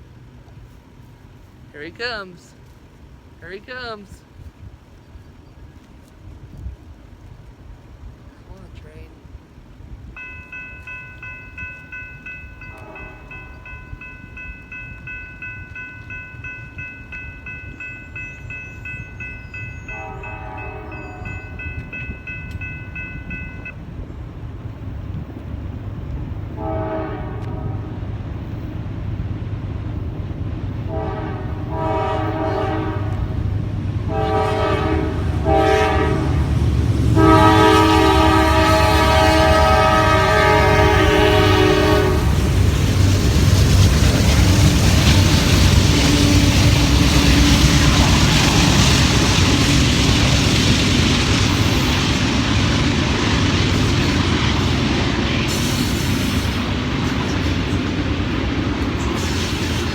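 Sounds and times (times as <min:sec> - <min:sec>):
diesel and wheel rumble: 0:04.1 - 0:59.9
steady ringing tone: 0:10.2 - 0:23.8
locomotive horn blasts: 0:12.6 - 0:13.7, 0:19.8 - 0:21.7, 0:26.6 - 0:28.0, 0:30.9 - 0:33.5, 0:34.1 - 0:42.5.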